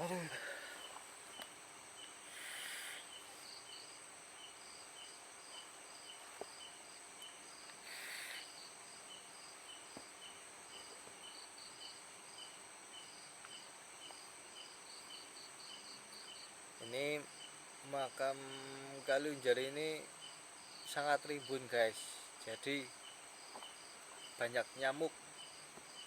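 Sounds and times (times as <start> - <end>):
crickets chirping: 0.0 - 26.0
bursts of hiss: 2.2 - 3.5, 7.7 - 8.6.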